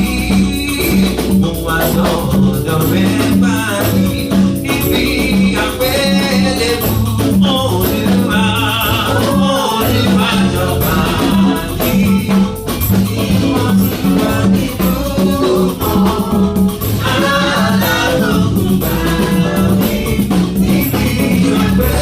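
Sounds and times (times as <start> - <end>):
band playing worship music: 0.0 - 22.0
people singing: 0.0 - 22.0.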